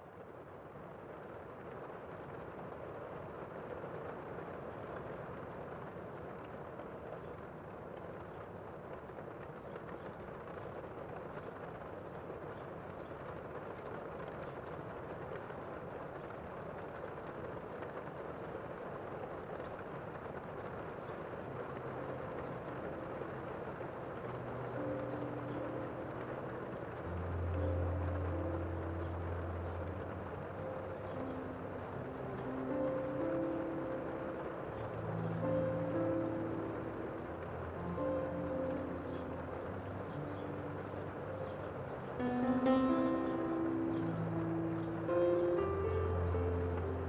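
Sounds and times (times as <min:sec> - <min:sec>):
rain: 0:00.0 - 0:47.0
faint drip ticks: 0:05.0 - 0:42.2
vehicle engine hum: 0:20.2 - 0:47.0.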